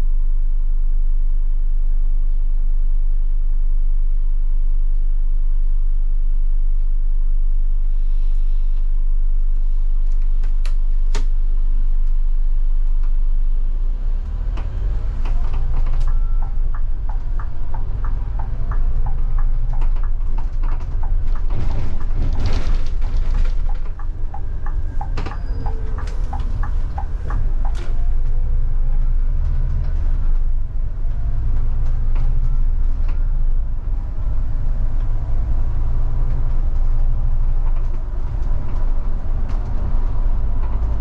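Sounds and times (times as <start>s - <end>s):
bus diesel engine: 7.9s - 41.0s.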